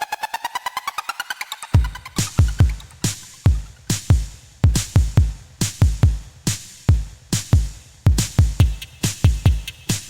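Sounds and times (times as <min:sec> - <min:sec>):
hi-hat hits: 0:01.6 - 0:10.0
bass drum kicks: 0:03.5 - 0:06.3, 0:06.9 - 0:09.7.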